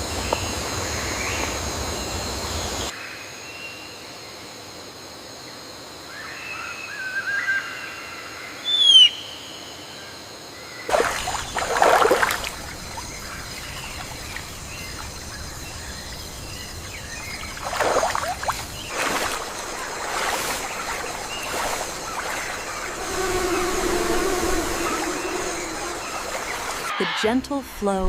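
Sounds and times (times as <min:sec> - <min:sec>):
warbling bird call: 0:16.7 - 0:27.2
high-pitched hum: 0:20.0 - 0:27.0.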